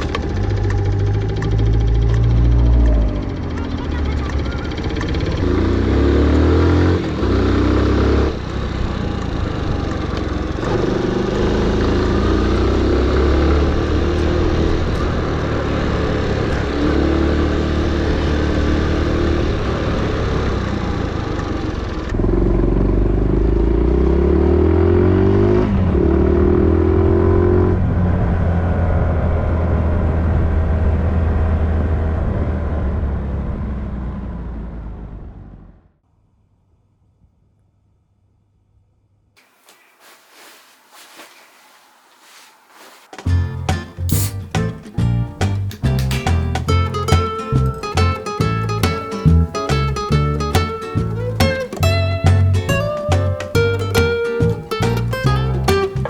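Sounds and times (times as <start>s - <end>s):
motorcycle engine accelerating: 0.0s - 35.9s.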